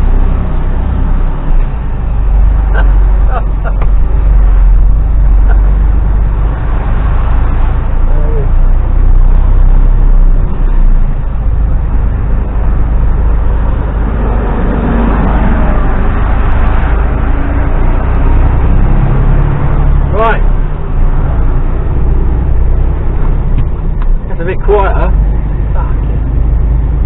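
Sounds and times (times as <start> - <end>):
lorry engine and road rumble: 0.0 - 27.0.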